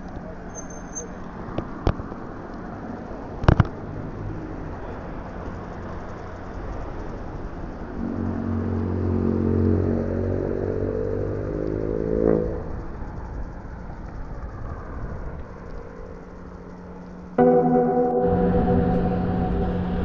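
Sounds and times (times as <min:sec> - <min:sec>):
outdoor noise: 0:00.0 - 0:20.0
motor rising in pitch: 0:17.4 - 0:20.0.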